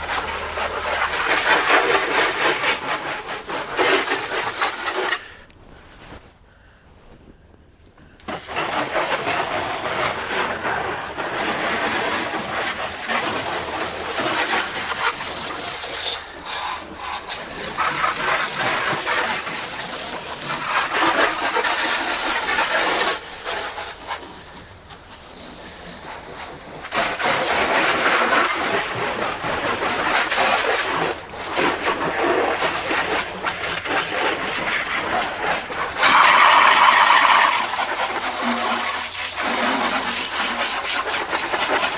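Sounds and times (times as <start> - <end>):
water jet spraying: 25.4 - 41.9.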